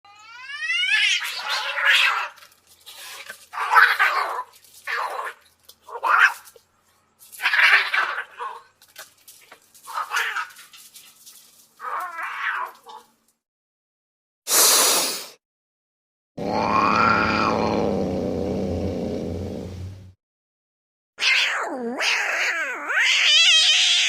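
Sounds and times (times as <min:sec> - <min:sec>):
cat yowling: 0:00.1 - 0:02.4, 0:09.9 - 0:10.6, 0:11.8 - 0:13.1, 0:16.4 - 0:17.9, 0:21.2 - 0:24.0.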